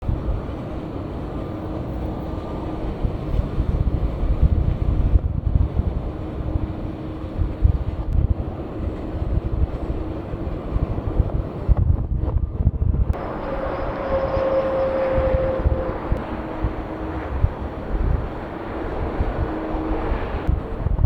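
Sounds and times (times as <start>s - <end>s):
jet engines rumbling: 0.0s - 21.0s
faint steady tones: 13.2s - 20.8s.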